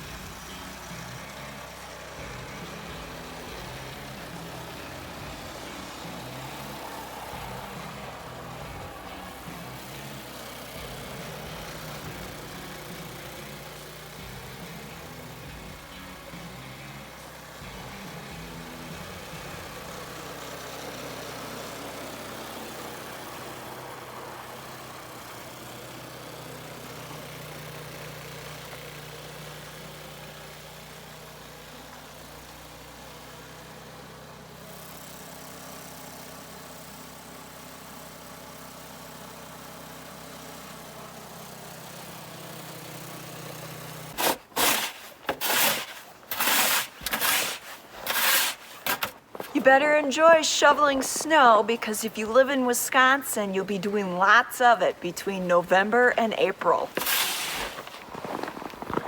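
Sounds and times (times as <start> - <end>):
engine idling: 0.0 - 49.6
snow shovel scraping: 42.9 - 52.7, 55.3 - 59.0.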